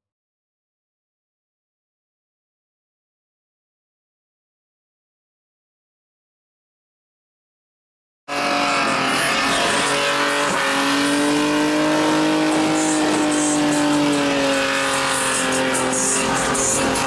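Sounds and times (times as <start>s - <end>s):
car engine at high revs: 8.3s - 17.0s.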